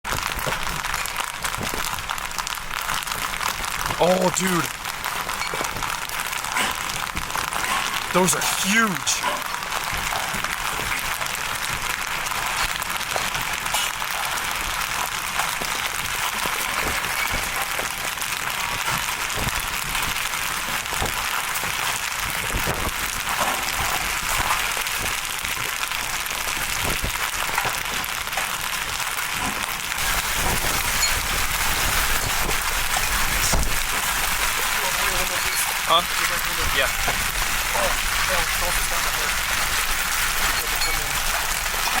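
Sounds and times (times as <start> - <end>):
hail and rain pelting down: 0.0 - 42.0
hailstones knocking hard surfaces: 0.0 - 42.0.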